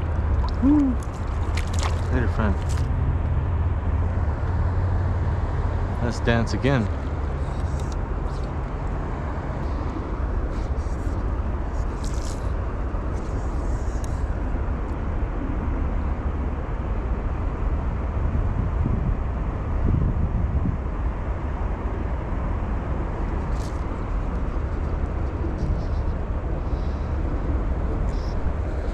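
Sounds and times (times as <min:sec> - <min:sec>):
river flowing: 0:00.0 - 0:14.7
wind rumbling on microphone: 0:00.0 - 0:28.9.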